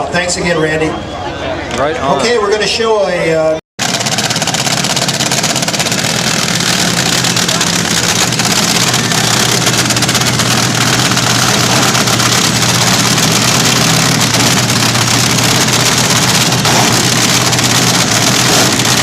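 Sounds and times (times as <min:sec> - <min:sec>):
racing car engine running: 0:03.8 - 0:19.0.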